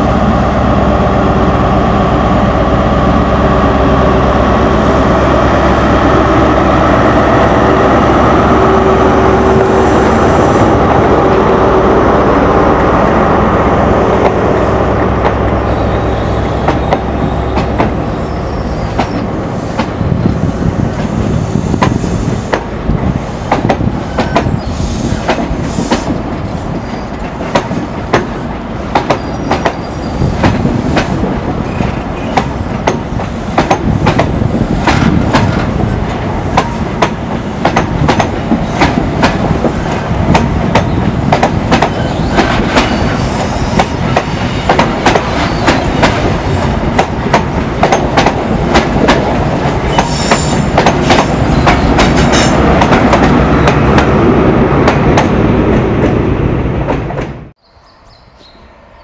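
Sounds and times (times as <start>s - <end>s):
diesel locomotive rumble: 0.0s - 58.2s
train wheels clicking over rail joints: 23.5s - 54.2s.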